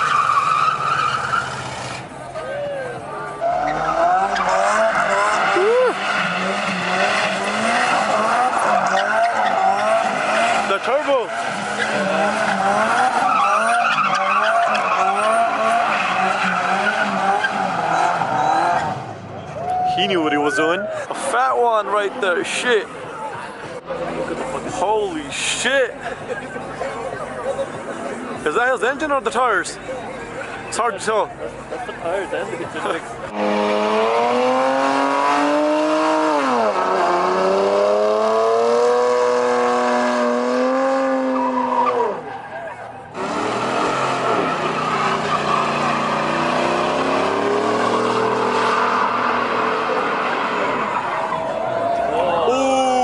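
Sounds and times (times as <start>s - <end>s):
car engine revving: 3.1s - 19.3s, 32.8s - 52.2s
tyres screeching: 3.2s - 18.9s, 39.4s - 53.0s.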